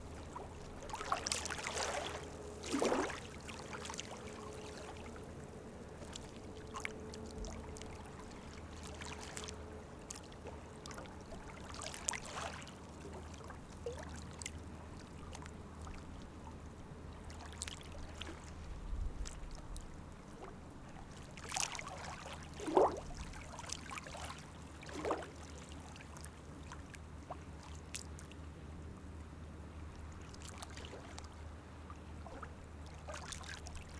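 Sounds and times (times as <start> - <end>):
small waves lapping: 0.0 - 28.4, 29.9 - 33.9
loud water splashes: 0.9 - 3.3.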